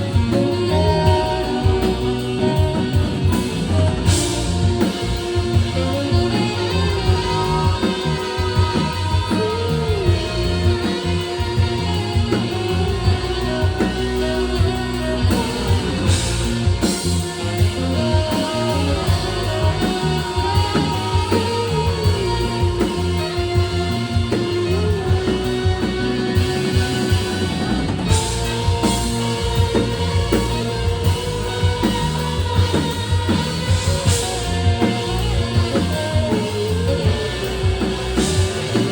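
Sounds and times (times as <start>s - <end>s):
drum kit: 0.0s - 38.9s
guitar: 0.0s - 38.9s
held melody bending in pitch: 0.0s - 38.9s.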